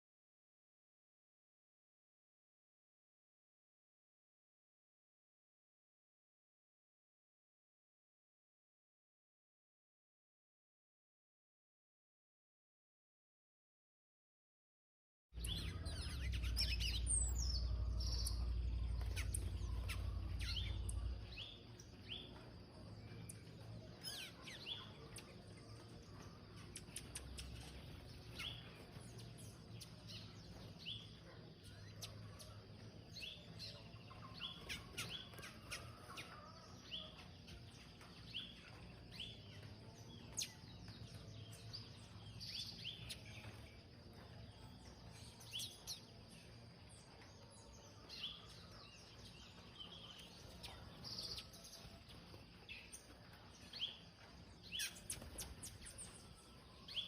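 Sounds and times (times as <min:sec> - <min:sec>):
low rumble: 0:15.4 - 0:21.6
birds chirping: 0:15.4 - 0:57.0.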